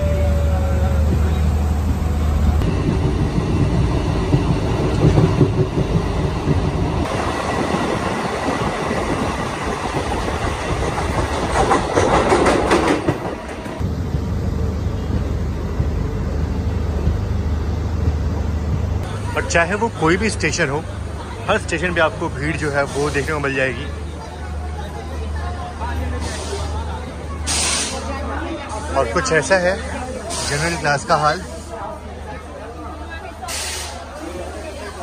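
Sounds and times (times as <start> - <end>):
train running on rails: 0.0 - 35.0
wheels clacking over rail joints: 8.6 - 14.3.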